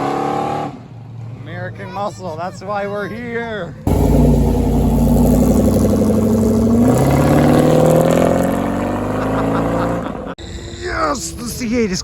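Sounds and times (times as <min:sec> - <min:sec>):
car engine accelerating hard: 0:03.9 - 0:10.3.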